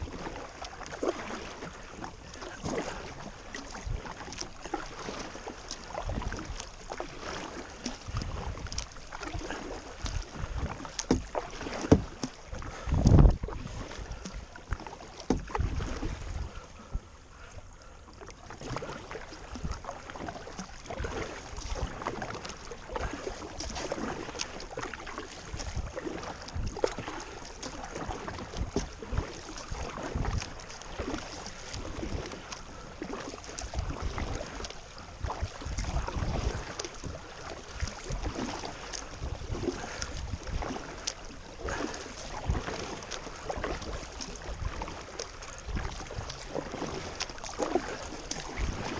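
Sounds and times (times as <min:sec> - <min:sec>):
paddle blades splashing: 0:00.0 - 0:48.9
running water: 0:00.0 - 0:48.9
wind rumbling on microphone: 0:05.9 - 0:17.2, 0:25.4 - 0:27.2, 0:27.9 - 0:32.8, 0:33.6 - 0:48.9
knocks against boat: 0:11.1 - 0:12.2, 0:15.2 - 0:15.6.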